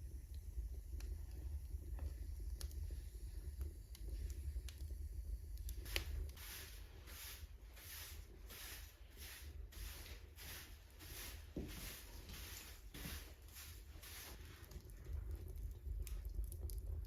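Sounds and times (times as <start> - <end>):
footsteps crunching in snow: 9.8 - 14.4.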